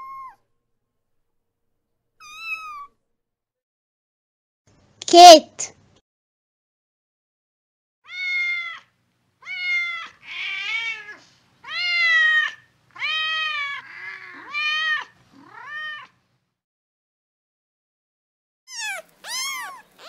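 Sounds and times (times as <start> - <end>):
cat meowing: 0.0 - 0.4, 2.2 - 3.0, 8.1 - 16.2, 18.7 - 20.0.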